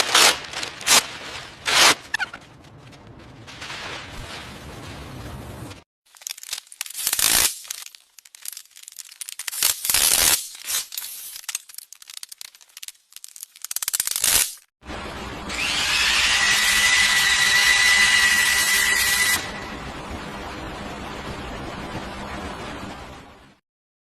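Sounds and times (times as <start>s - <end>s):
loud scraping or tearing: 0.0s - 2.4s, 6.1s - 14.7s
power tool high whine: 15.4s - 19.7s.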